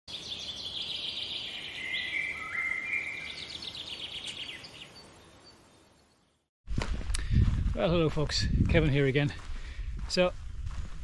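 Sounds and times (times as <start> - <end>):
birdsong with high trills: 0.1 - 6.5.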